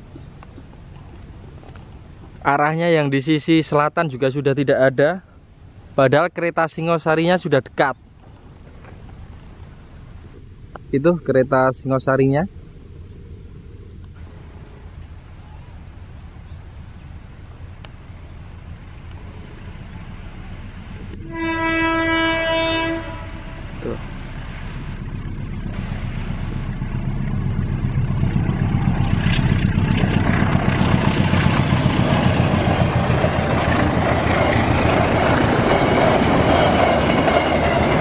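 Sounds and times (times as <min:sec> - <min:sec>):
diesel engine rumble: 0:00.0 - 0:38.0
train rail noise: 0:14.2 - 0:38.0
train horn blast: 0:21.1 - 0:24.0.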